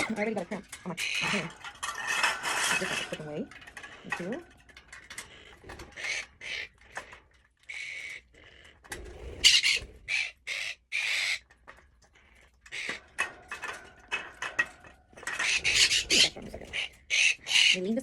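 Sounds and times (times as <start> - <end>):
parrots screeching: 0.0 - 4.4, 5.1 - 11.5, 12.7 - 13.8, 15.2 - 18.0.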